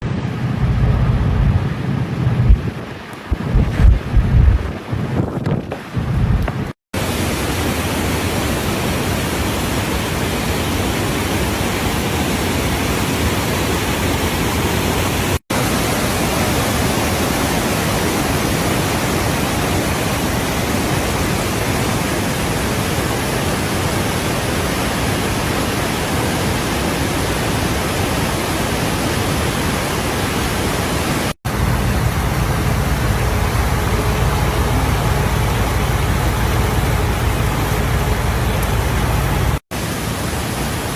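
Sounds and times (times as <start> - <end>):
low rumble: 0.0 - 4.7, 31.5 - 39.6
waterfall rushing: 6.6 - 40.9.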